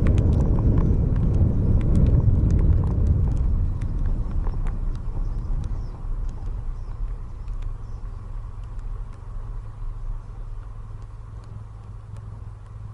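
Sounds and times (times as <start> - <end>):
light clicks: 0.0 - 12.9
vehicle engine and road rumble: 0.0 - 12.9.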